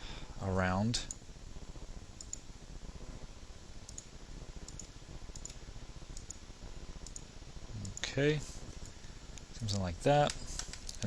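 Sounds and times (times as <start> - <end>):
faint steady hum: 0.0 - 11.0
computer mouse clicking: 2.2 - 2.4, 3.9 - 5.6, 6.2 - 6.4, 7.0 - 8.1, 10.2 - 11.0.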